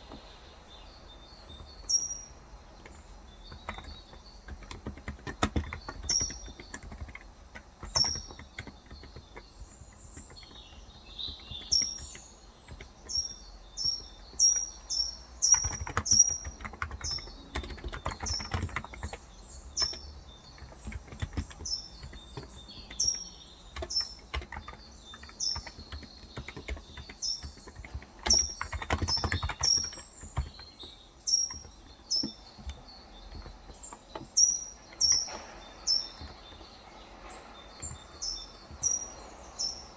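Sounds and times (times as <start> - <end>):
keyboard typing: 1.3 - 39.4.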